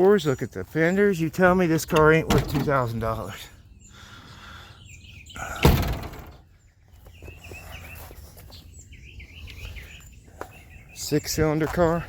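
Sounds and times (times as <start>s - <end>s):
small birds chirping: 0.0s - 12.0s
sharp loud thunk: 5.6s - 6.4s.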